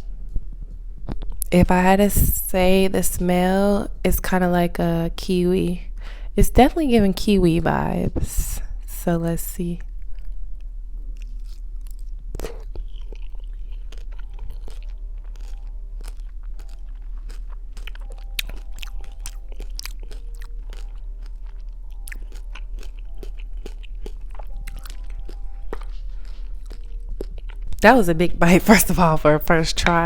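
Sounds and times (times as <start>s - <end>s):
biting and chewing fruit: 10.0s - 27.9s.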